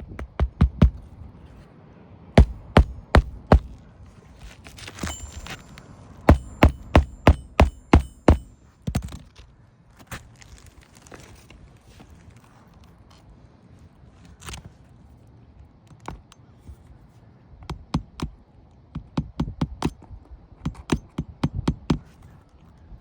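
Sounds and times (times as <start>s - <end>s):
sharp knocks: 0.0s - 1.0s, 2.4s - 3.8s, 6.3s - 9.2s.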